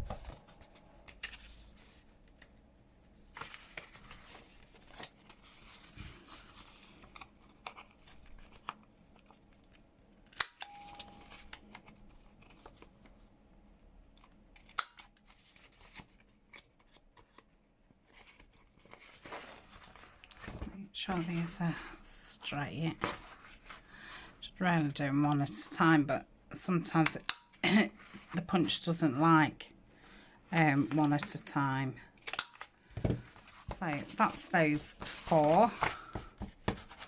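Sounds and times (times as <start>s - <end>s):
paper pages rustling: 0.0s - 9.8s, 10.8s - 13.2s, 14.2s - 21.9s, 22.8s - 24.2s, 32.2s - 37.0s.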